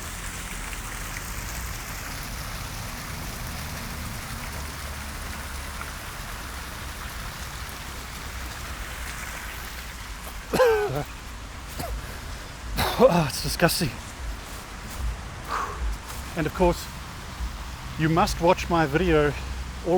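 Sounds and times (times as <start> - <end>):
water pouring into stream: 0.0 - 14.9.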